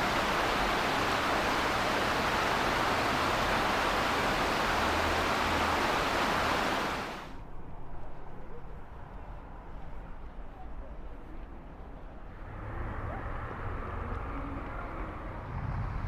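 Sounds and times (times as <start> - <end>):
water rushing and splashing: 0.0 - 7.4
outdoor ambience: 0.0 - 16.0.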